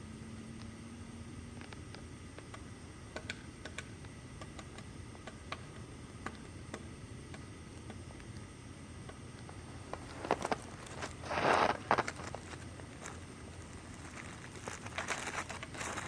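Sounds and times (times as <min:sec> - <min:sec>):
woodpecker pecking at wood: 0:01.9 - 0:08.1.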